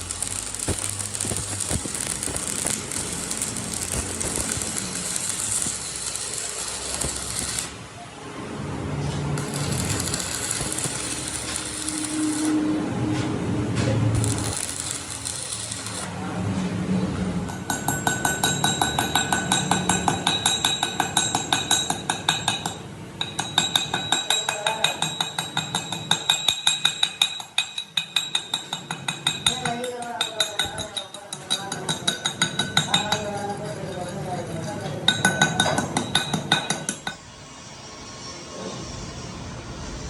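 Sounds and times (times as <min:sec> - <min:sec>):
rapid metallic tapping: 0:00.0 - 0:07.7, 0:09.4 - 0:12.6, 0:14.2 - 0:16.1
workshop work noise: 0:00.0 - 0:40.0.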